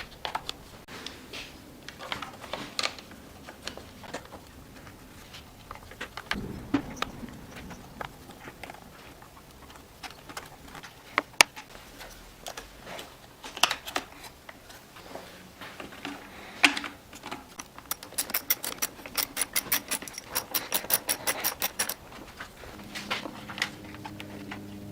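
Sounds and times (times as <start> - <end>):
tools and parts clicking and knocking: 16.0 - 22.6
rapid even clicks: 17.6 - 22.7.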